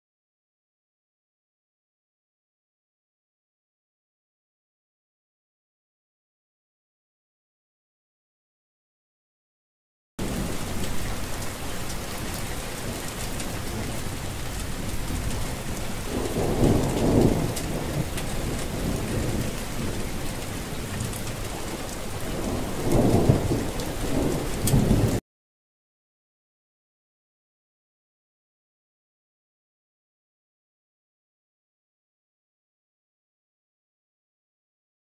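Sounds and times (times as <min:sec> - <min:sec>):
low rolls of thunder: 0:10.2 - 0:25.2
steady rain falling: 0:10.2 - 0:25.2.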